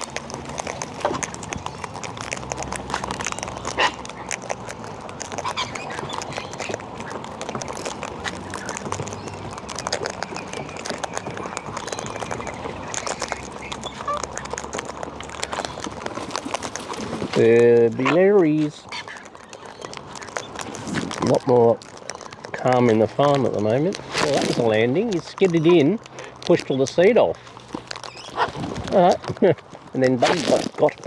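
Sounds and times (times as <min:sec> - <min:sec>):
beaks clicking and tapping: 0:00.0 - 0:31.0
bird squawks: 0:05.4 - 0:07.2, 0:10.0 - 0:14.6, 0:18.8 - 0:20.5, 0:28.1 - 0:28.6.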